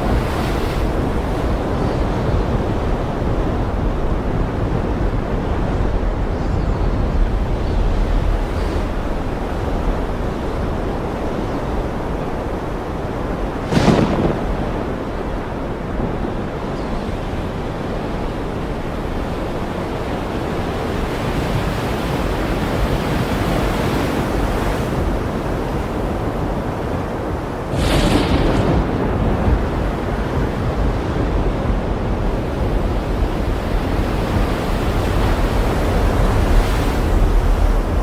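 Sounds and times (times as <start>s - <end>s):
ocean surf rushing: 0.0s - 38.0s
wind: 0.0s - 38.0s
wave crash: 12.4s - 16.2s, 27.5s - 34.0s.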